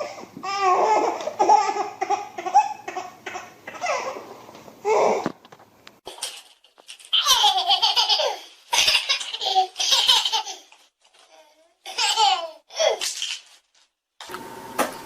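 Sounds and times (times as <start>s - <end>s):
small child laughing: 7.1s - 10.8s, 11.9s - 13.0s.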